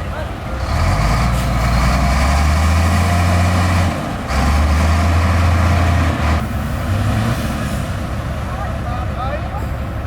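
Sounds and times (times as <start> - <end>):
heavy diesel engine under load: 0.0 - 10.0.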